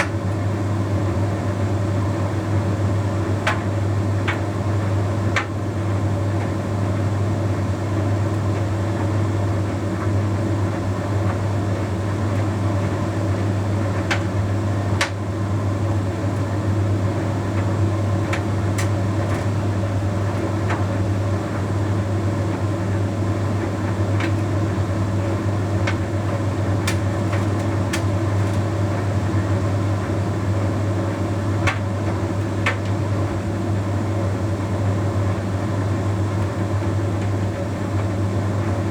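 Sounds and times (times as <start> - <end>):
tumble dryer motor humming: 0.0 - 38.9
light clicks of tumbling load: 25.2 - 28.8.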